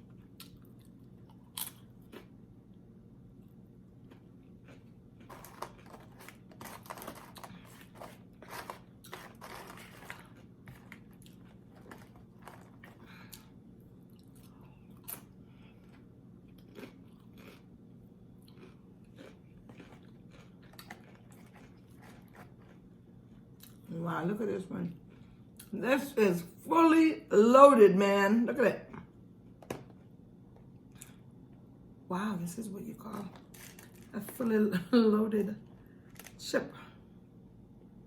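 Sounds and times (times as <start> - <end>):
person chewing crunchy chips: 0.0 - 2.4, 3.4 - 23.9, 25.0 - 25.7, 30.8 - 31.3, 33.3 - 34.2.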